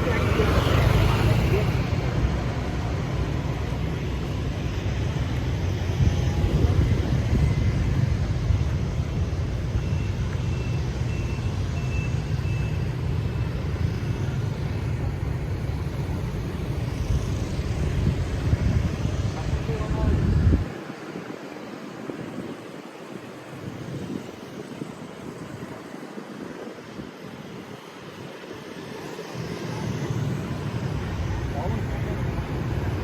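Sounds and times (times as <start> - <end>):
street traffic rumble: 0.0 - 33.0
faint high beeps: 9.6 - 14.2.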